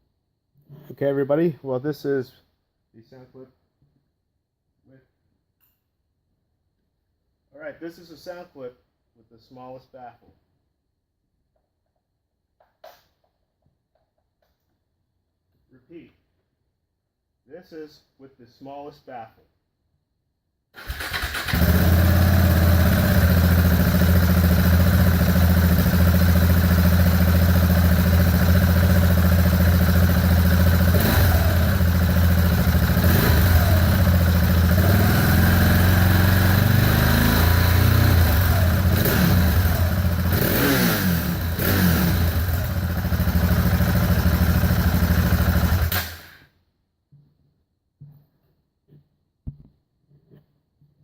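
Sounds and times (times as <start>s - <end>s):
motorcycle engine idling and revving: 20.8s - 46.4s.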